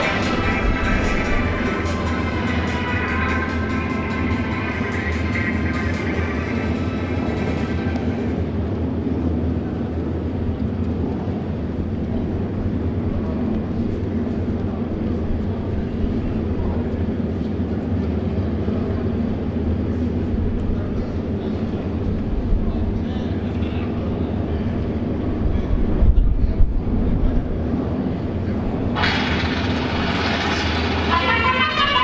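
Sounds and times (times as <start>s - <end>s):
low rumble: 0.0s - 23.4s, 24.2s - 32.0s
trumpet fanfare: 30.3s - 32.0s.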